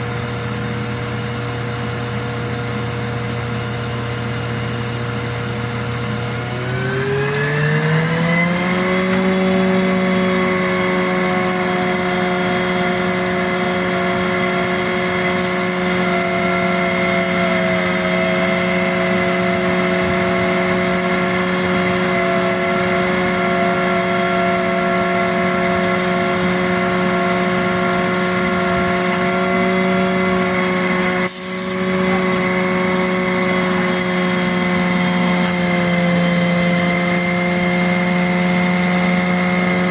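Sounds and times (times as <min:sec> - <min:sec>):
engine revving: 0:06.2 - 0:39.9.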